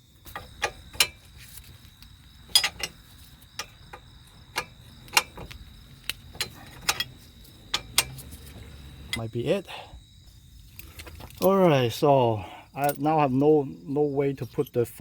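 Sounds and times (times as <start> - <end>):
hand tools clicking on metal: 0.3 - 1.2, 2.0 - 8.5.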